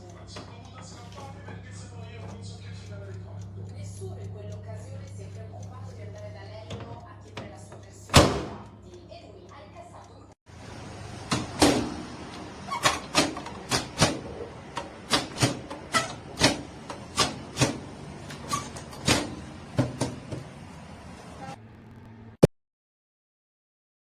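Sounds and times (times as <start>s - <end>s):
steady low hum: 0.0s - 7.3s
microwave oven clicks and knocks: 6.7s - 8.9s, 11.3s - 20.6s.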